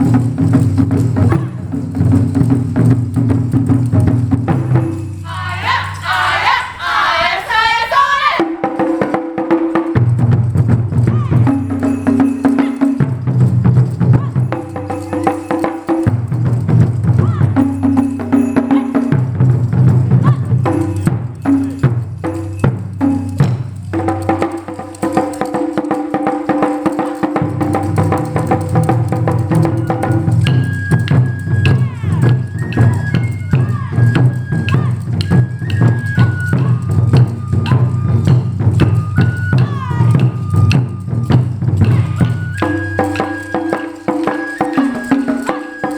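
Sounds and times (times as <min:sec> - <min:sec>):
drums and wooden clappers: 0:00.0 - 0:45.9
high flute long notes: 0:29.9 - 0:41.3, 0:41.9 - 0:45.9.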